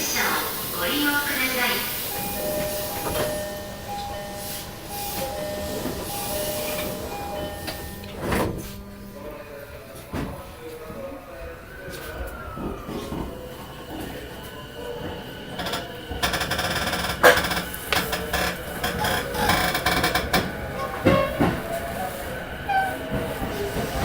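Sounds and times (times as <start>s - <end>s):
electric train running noise: 0.0s - 10.3s, 12.1s - 24.0s.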